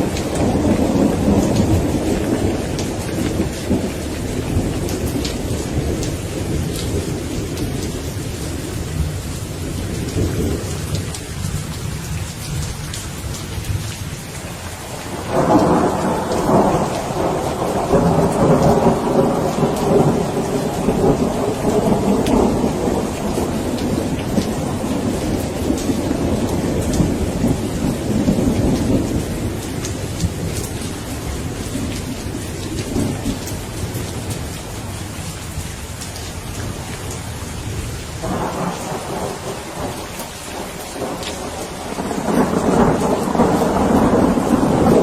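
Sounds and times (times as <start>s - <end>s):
distant thunder rumbling: 0.0s - 8.4s, 14.9s - 35.0s, 38.0s - 45.0s
steady rain: 0.0s - 45.0s
loud thunder peal: 15.1s - 30.5s, 38.2s - 40.0s, 40.6s - 45.0s.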